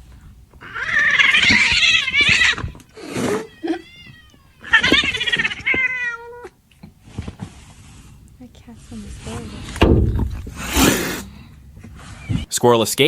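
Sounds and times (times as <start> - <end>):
cat meowing loudly: 0.6 - 6.6.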